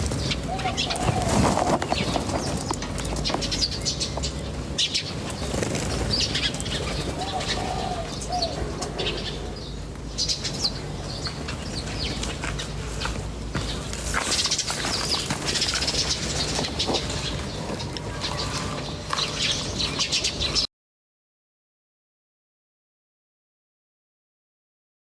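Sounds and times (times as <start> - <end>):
wing fluttering: 0.0 - 9.4, 10.2 - 20.7
small birds chirping: 0.0 - 20.7.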